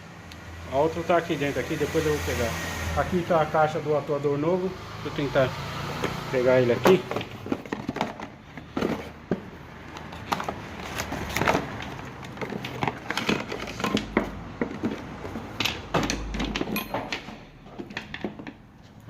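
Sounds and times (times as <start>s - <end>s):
rummaging in a parts box: 6.4s - 19.0s.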